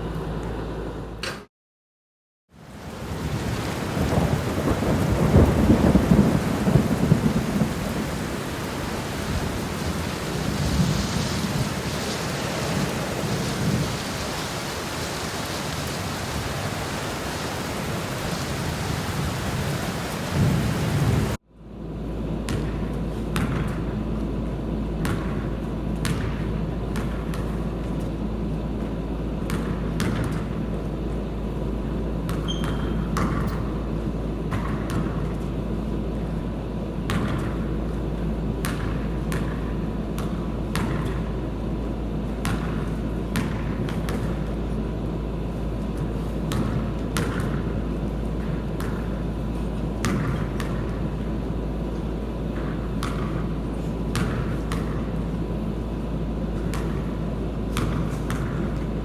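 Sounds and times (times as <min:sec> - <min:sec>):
basketball bouncing on hard floor: 0:23.4 - 0:23.8, 0:25.0 - 0:25.4, 0:26.0 - 0:26.4, 0:29.5 - 0:30.4, 0:32.3 - 0:33.6, 0:34.5 - 0:35.3, 0:38.6 - 0:41.2, 0:42.4 - 0:44.4, 0:46.5 - 0:47.6, 0:50.0 - 0:50.9, 0:52.6 - 0:53.4, 0:54.1 - 0:55.0, 0:56.6 - 0:57.1, 0:57.7 - 0:58.8.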